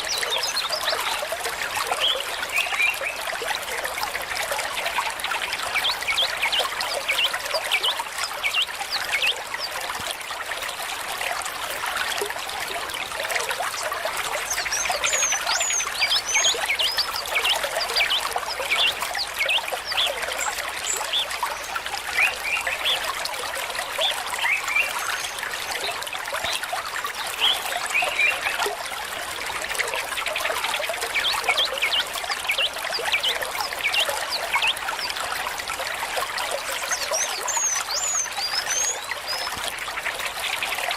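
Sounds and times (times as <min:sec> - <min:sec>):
stream babbling: 0:00.0 - 0:40.9.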